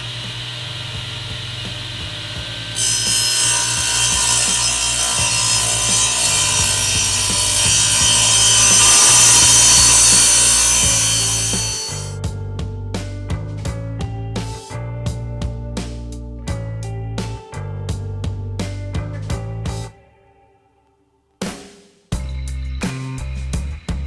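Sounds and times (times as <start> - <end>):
power tool working wood: 0.0 - 12.2
background music: 1.3 - 21.1.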